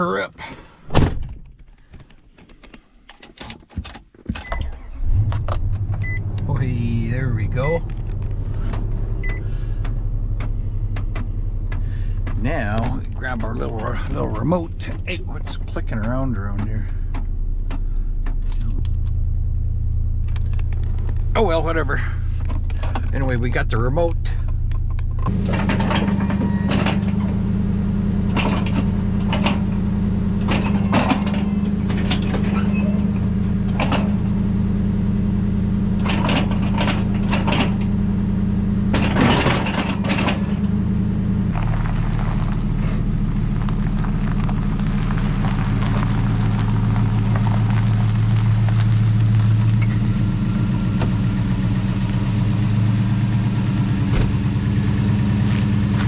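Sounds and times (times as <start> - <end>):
truck engine running: 4.7 - 56.0
sharp clicks and knocks: 7.8 - 14.1, 35.6 - 38.0, 38.9 - 40.9.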